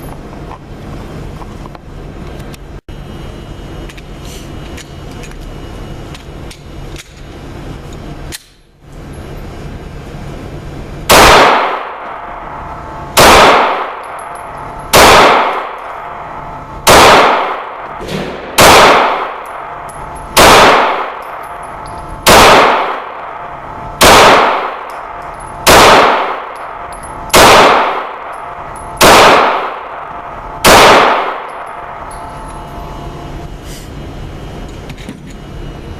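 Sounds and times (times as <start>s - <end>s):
steady background hum: 0.0s - 35.9s
pistol shots indoors: 11.1s - 32.7s.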